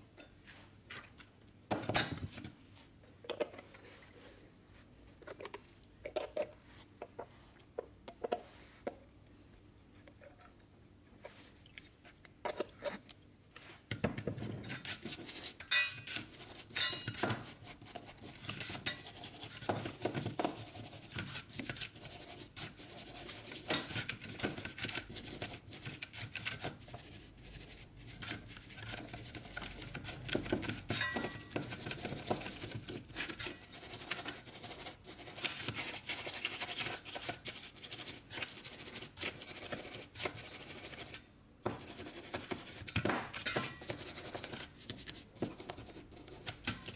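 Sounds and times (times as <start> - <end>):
small metallic clicks and clinks: 0.2 - 0.4.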